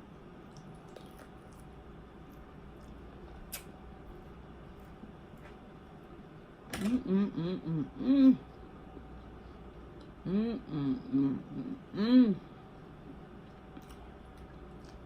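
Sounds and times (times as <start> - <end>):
person humming: 6.9 - 8.4, 10.2 - 12.5.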